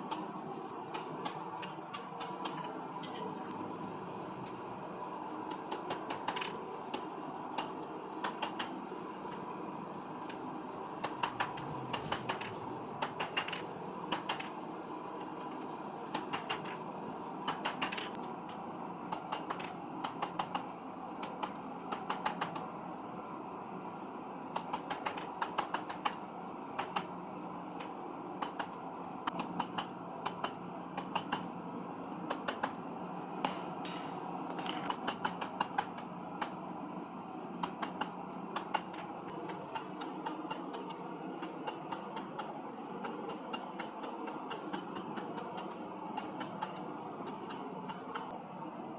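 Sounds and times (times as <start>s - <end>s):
mechanical hum: 0.0s - 48.9s
hammer striking steel on anvil: 33.4s - 34.3s.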